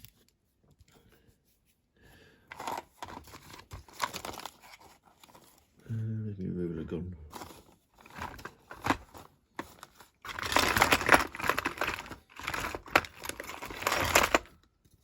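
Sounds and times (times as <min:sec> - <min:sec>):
rummaging on a workbench: 0:02.5 - 0:05.7, 0:07.3 - 0:15.0
rustling and clattering clicks: 0:07.4 - 0:15.0.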